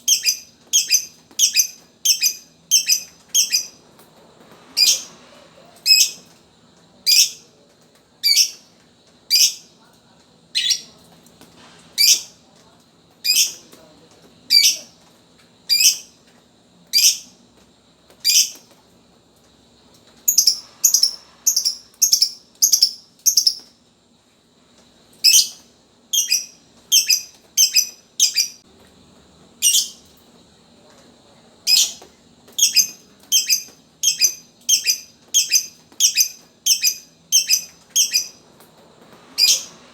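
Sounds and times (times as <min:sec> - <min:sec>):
lovebird chirping: 0:00.0 - 0:03.8, 0:04.8 - 0:05.2, 0:05.8 - 0:06.3, 0:13.2 - 0:13.6, 0:20.3 - 0:23.7, 0:26.2 - 0:28.6, 0:32.6 - 0:38.4, 0:39.4 - 0:39.8.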